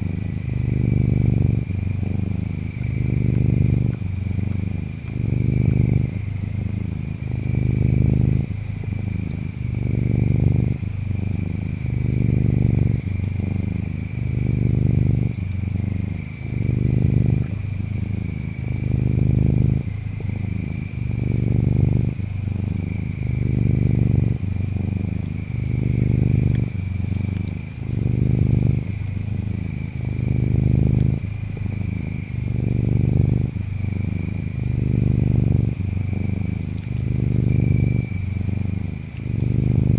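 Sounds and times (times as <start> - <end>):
cat purring: 0.0 - 39.9
faint insect chirps: 0.0 - 39.9
high insect trill: 31.8 - 39.9.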